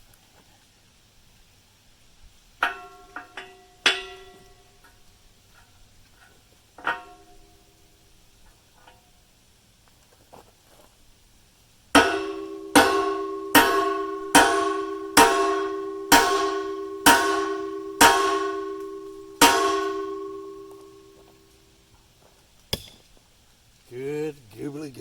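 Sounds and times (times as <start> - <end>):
hammer striking steel: 2.6 - 4.7, 12.0 - 21.3, 22.7 - 23.0
metal ringing: 2.6 - 5.0, 6.8 - 7.8, 12.0 - 21.6.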